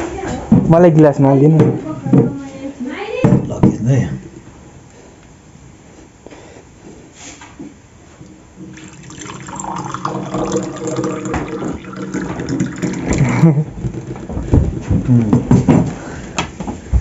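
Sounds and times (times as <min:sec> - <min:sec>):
water pouring into glass: 0:08.6 - 0:13.4.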